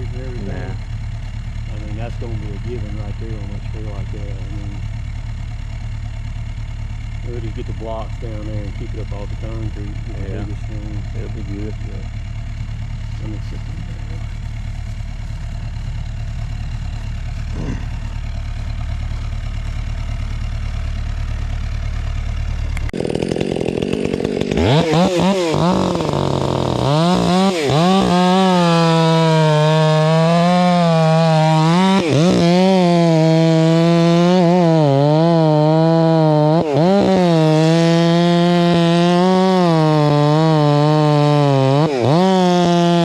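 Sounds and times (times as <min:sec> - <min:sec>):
low engine idle: 0:00.0 - 0:24.8
chainsaw cutting wood: 0:00.0 - 0:43.0.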